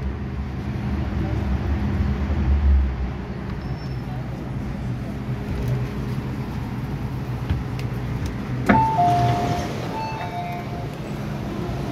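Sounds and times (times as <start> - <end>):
train low hum: 0.0 - 11.9
two-note door warning chime: 8.7 - 10.9.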